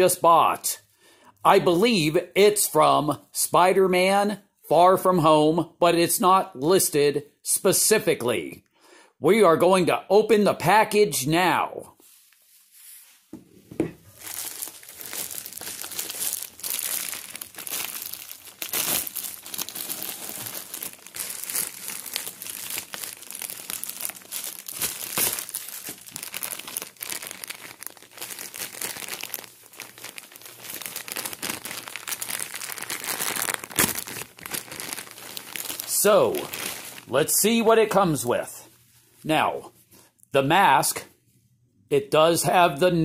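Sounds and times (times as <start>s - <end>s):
packaging crinkling and rustling: 13.8s - 37.1s
packaging tearing: 14.1s - 37.1s.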